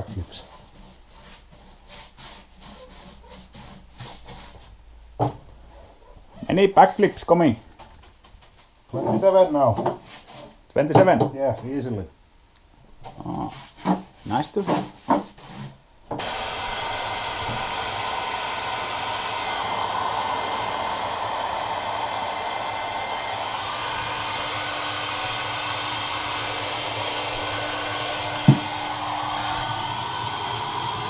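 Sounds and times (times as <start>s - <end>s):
motor whirring and blowing: 16.2s - 31.0s.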